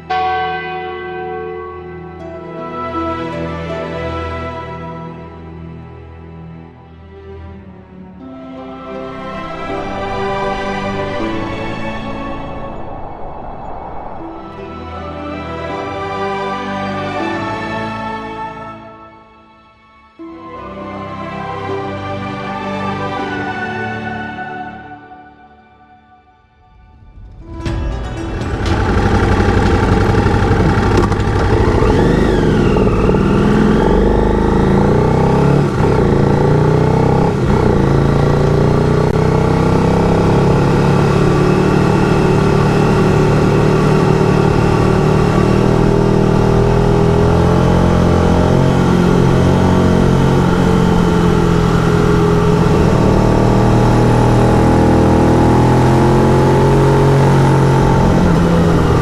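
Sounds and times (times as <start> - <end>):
motorcycle engine running: 28.2 - 59.0.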